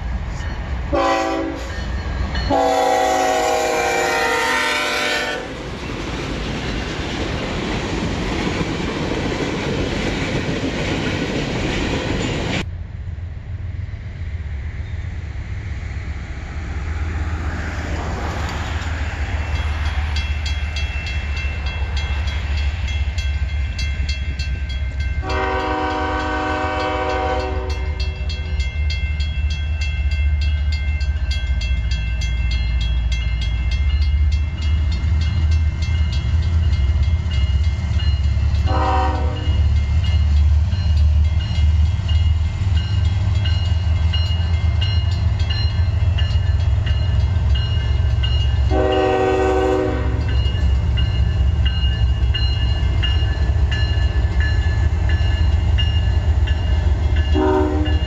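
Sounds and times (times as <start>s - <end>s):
diesel train rumble: 0.0s - 58.0s
freight train rolling past: 0.0s - 58.0s
locomotive horn blowing: 0.9s - 1.7s, 2.5s - 5.6s, 25.2s - 28.2s, 38.6s - 39.6s, 48.6s - 50.4s, 57.3s - 58.0s.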